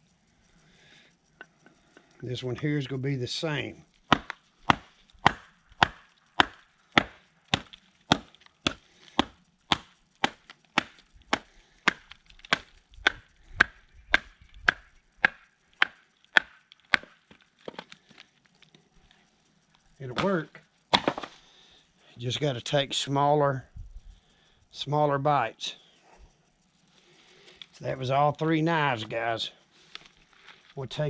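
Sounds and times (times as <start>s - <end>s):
knife struck through firewood: 4.1s - 17.9s, 20.2s - 21.4s.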